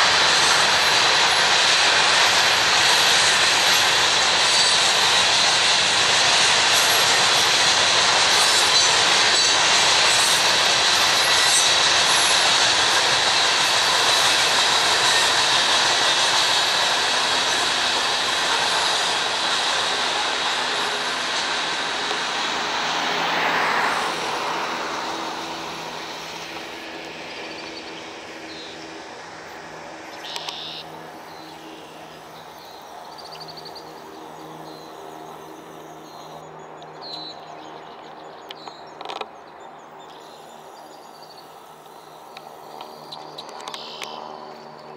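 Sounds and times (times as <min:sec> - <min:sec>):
train wheels rushing on rail: 0:00.0 - 0:44.9
birds chirping and trilling: 0:30.0 - 0:44.9.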